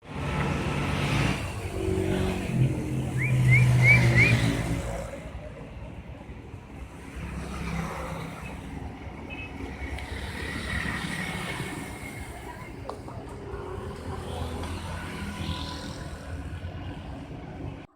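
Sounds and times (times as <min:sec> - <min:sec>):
vehicle engine passing by: 0:00.0 - 0:05.4
quick rising chirps: 0:03.2 - 0:04.6.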